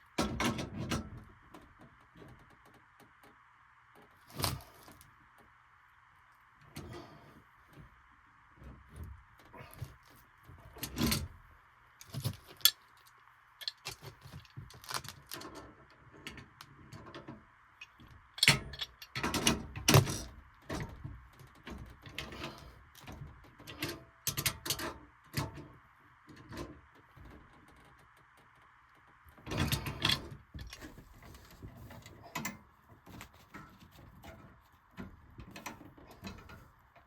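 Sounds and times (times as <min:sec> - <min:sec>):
tools and metal parts clicking: 0:12.0 - 0:20.8.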